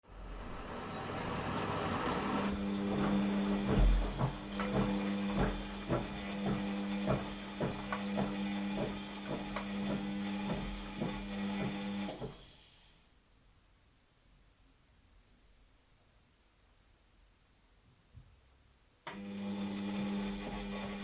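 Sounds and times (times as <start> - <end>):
washing machine motor hum: 0.0 - 12.5, 19.2 - 21.0
washing machine hiss: 0.1 - 13.1.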